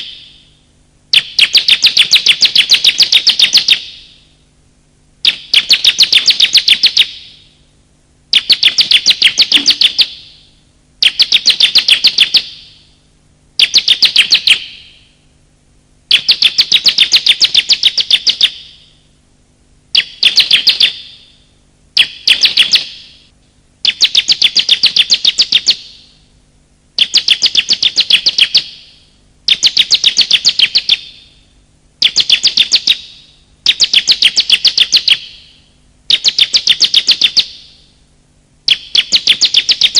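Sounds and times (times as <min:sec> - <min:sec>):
bird rapid high chattering: 0:01.1 - 0:04.1, 0:05.2 - 0:07.4, 0:08.3 - 0:10.4, 0:11.0 - 0:12.7, 0:13.6 - 0:15.0, 0:16.1 - 0:18.8, 0:19.9 - 0:21.3, 0:22.0 - 0:23.2, 0:23.8 - 0:26.0, 0:27.0 - 0:28.9, 0:29.5 - 0:31.2, 0:32.0 - 0:35.5, 0:36.1 - 0:37.7, 0:38.7 - 0:39.9.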